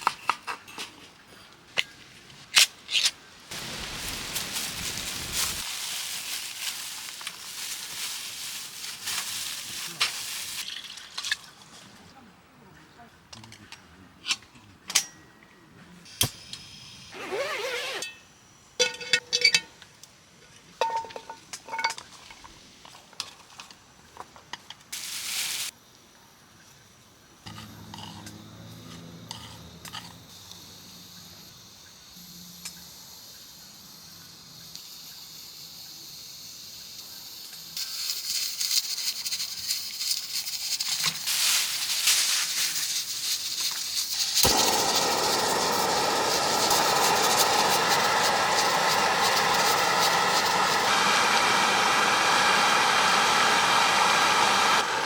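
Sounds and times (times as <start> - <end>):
steady crackling hiss: 1.6 - 10.7, 24.7 - 27.4, 30.5 - 53.1
cookware clinking and knocking: 20.8 - 22.0.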